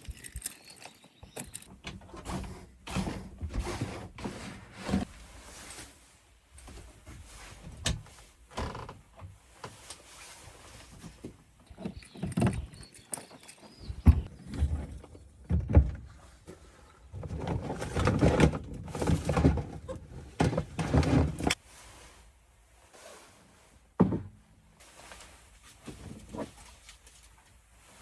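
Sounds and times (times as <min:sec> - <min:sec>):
handling knocks and thuds: 0:13.9 - 0:21.6, 0:24.0 - 0:24.5.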